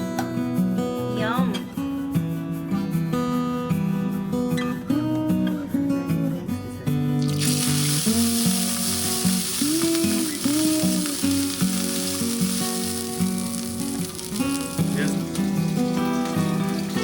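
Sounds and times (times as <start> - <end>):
background music: 7.2 - 17.0
food sizzling in a pan: 7.2 - 17.0.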